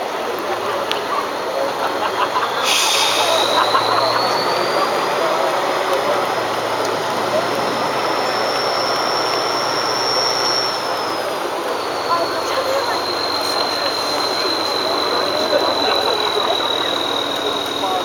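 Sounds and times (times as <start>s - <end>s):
truck engine under load: 0.0s - 18.0s.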